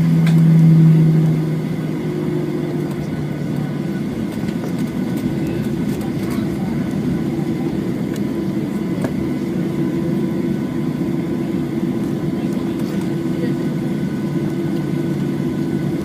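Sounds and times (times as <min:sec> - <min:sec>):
jet engine cabin drone: 0:00.0 - 0:16.0.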